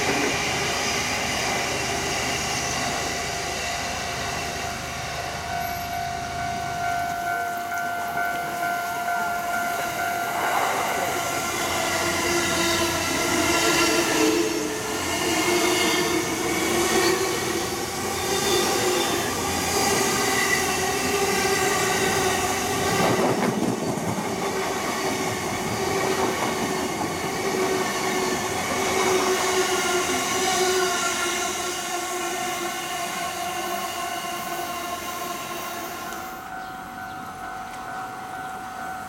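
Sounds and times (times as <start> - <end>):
train wheels on rails: 0.0 - 39.0
steady high tones: 3.2 - 14.3.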